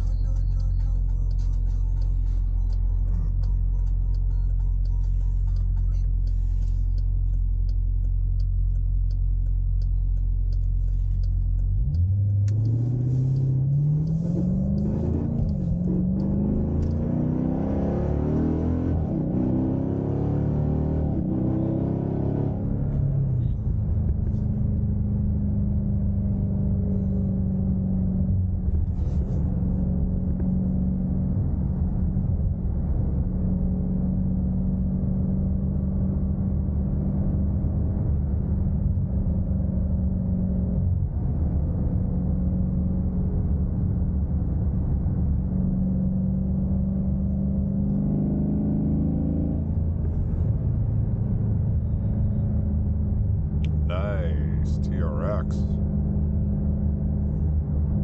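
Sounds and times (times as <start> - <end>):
car engine droning while driving: 0.0 - 58.0.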